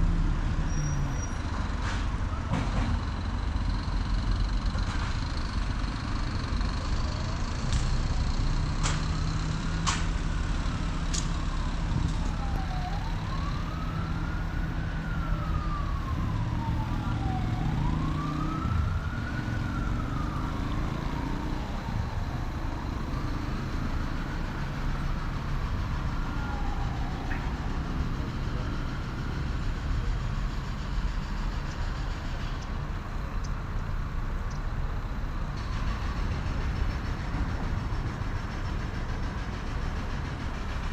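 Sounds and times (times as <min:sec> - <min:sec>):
traffic rumble: 0:00.0 - 0:40.9
emergency siren wailing: 0:10.2 - 0:39.2.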